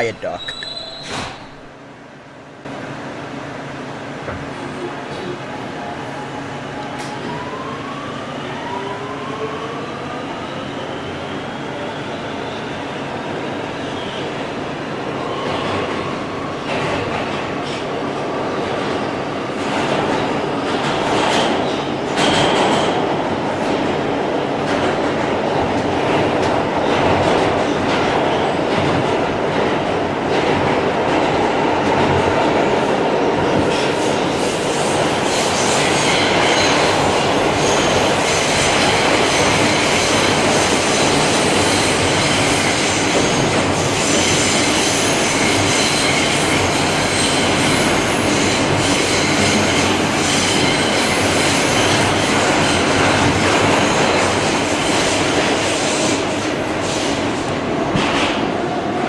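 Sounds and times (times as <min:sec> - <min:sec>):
subway train wheels clattering: 0:00.0 - 0:59.0
high-pitched wheel squeal: 0:00.4 - 0:01.7.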